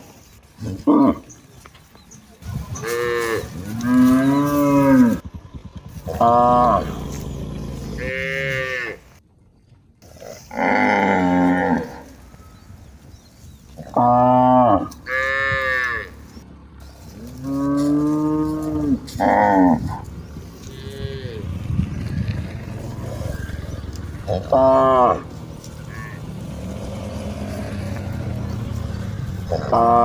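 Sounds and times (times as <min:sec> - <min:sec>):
cattle mooing: 0:02.7 - 0:05.2, 0:05.9 - 0:09.2, 0:10.3 - 0:12.3, 0:13.8 - 0:16.2, 0:17.2 - 0:30.0.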